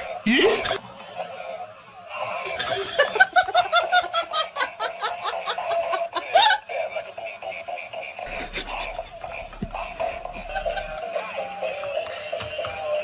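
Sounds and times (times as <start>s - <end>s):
person laughing: 0.3s - 0.8s, 2.4s - 11.1s.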